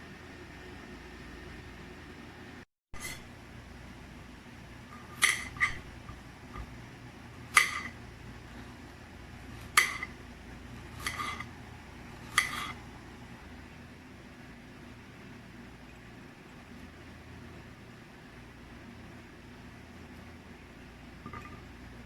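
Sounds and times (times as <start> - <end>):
dishes clinking: 21.2 - 21.7.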